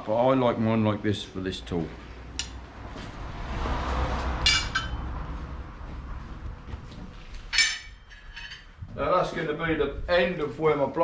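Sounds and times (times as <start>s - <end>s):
steel pieces clinking: 7.5s - 8.7s.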